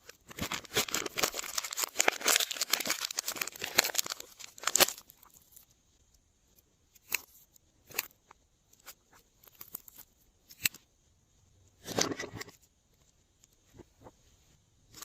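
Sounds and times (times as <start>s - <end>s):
plastic bag crinkling: 0.0s - 5.6s
slime squishing and crackling: 0.0s - 5.7s.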